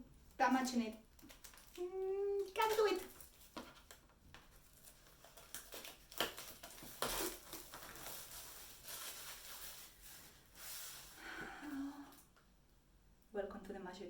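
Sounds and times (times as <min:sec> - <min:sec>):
packaging wrap crinkling: 0:01.0 - 0:11.3.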